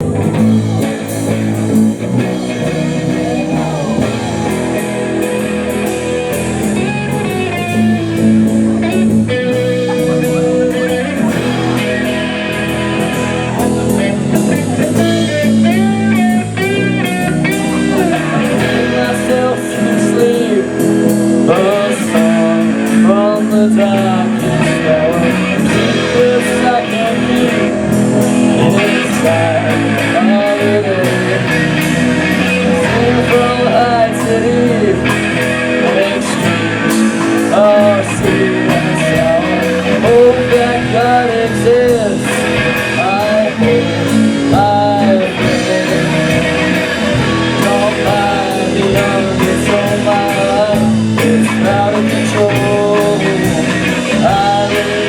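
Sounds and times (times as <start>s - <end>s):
rock band playing: 0.0s - 55.0s.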